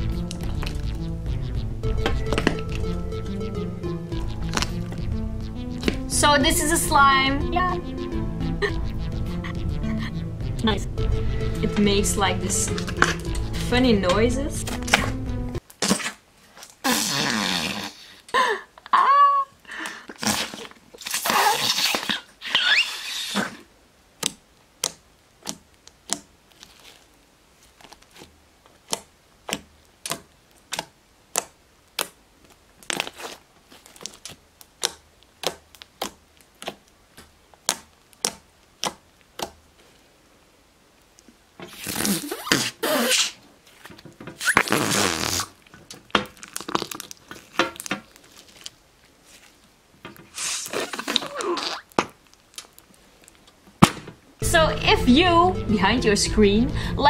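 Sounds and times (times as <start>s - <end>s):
slime squelching: 0.0s - 18.1s, 20.0s - 40.0s, 41.2s - 53.9s
slime popping: 4.1s - 6.3s, 27.8s - 39.6s, 44.4s - 49.6s, 50.2s - 53.9s.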